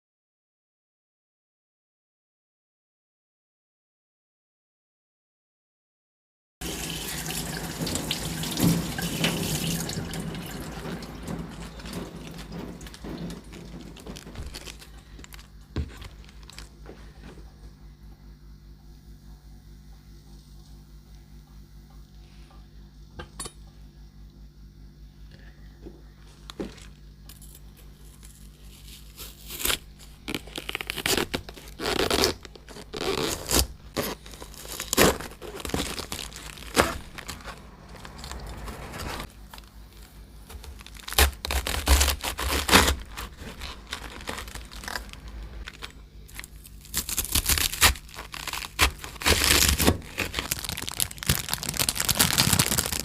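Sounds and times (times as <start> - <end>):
lettuce leaves tearing: 7.4 - 16.7, 27.3 - 53.0
faint low hum: 7.4 - 53.0.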